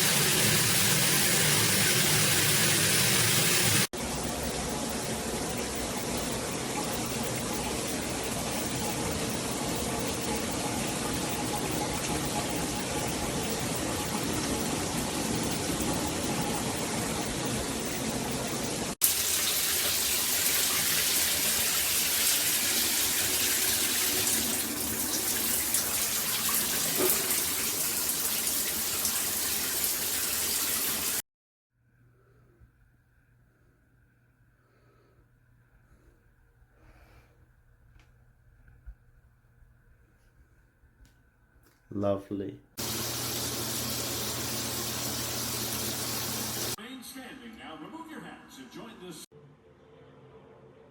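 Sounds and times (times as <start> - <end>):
shower water spraying: 0.0 - 4.0, 4.7 - 31.2, 42.8 - 46.8.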